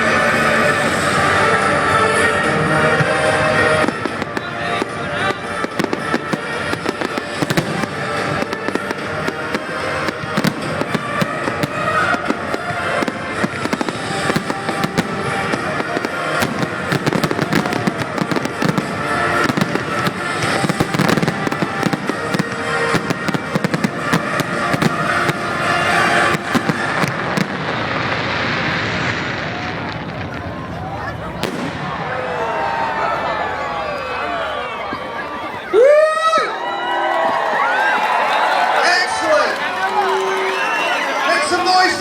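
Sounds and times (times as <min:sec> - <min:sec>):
music playing: 0:00.0 - 0:28.1
fireworks bangs and crackles: 0:00.0 - 0:36.4, 0:37.1 - 0:42.0.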